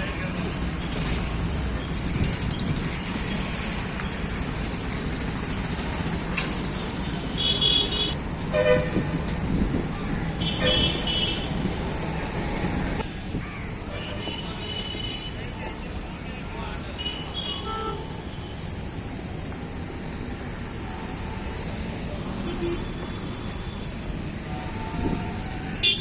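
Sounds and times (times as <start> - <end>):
road traffic noise: 0.0 - 26.0
vehicle horns honking: 7.2 - 9.1, 10.4 - 11.6, 14.0 - 15.4, 22.4 - 26.0.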